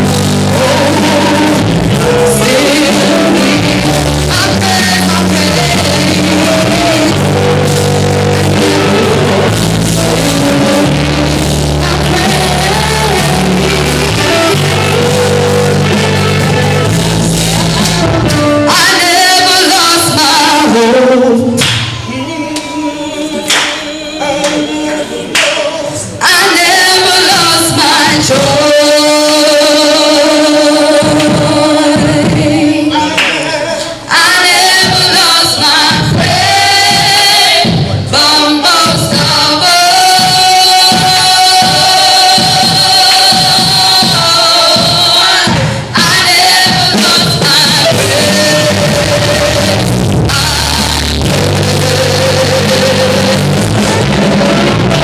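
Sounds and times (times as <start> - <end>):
bass line: 0.0 - 22.5, 38.8 - 55.0
gospel singing with band: 0.0 - 55.0.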